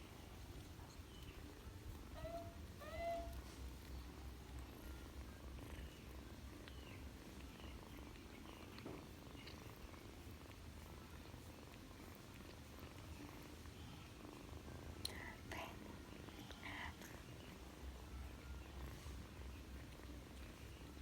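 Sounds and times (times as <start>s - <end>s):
kitten purring: 0.0s - 21.0s
kitten chirping: 0.8s - 8.7s.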